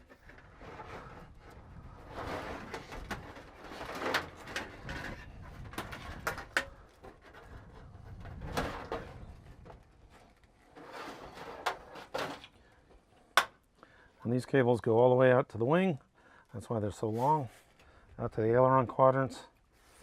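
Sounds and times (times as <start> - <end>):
steel cables rubbing and scraping: 0.0 - 12.5.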